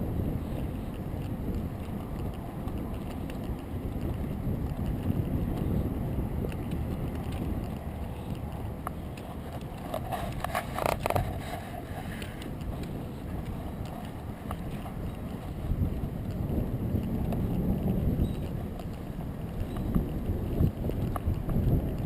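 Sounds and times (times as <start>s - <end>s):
wind buffeting microphone: 0.0s - 22.0s
clicking and rattling: 6.4s - 16.5s.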